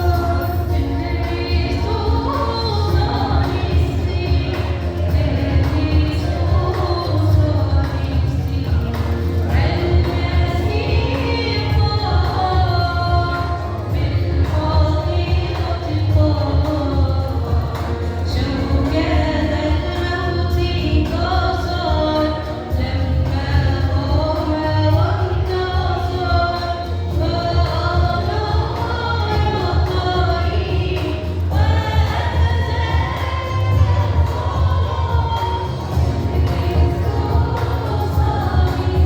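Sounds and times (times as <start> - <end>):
choir singing: 0.0 - 7.4, 9.4 - 12.2, 27.3 - 39.0.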